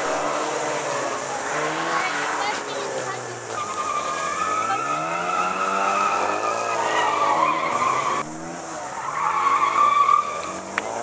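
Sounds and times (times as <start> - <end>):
car engines revving: 0.0 - 11.0
high tyre squeal: 3.5 - 11.0.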